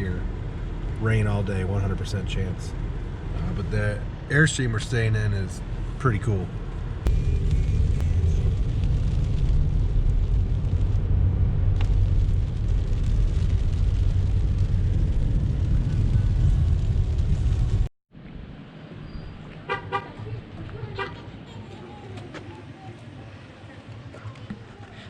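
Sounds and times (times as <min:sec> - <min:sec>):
car driving rumble: 0:00.0 - 0:25.0.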